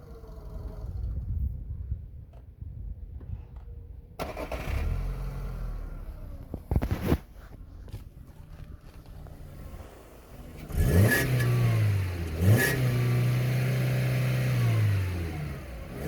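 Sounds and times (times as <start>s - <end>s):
car engine running: 4.9s - 16.0s.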